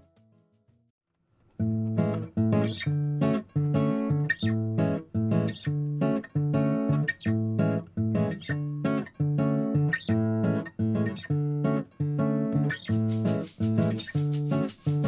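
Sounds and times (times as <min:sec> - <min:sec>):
acoustic guitar strumming: 0:01.6 - 0:15.0.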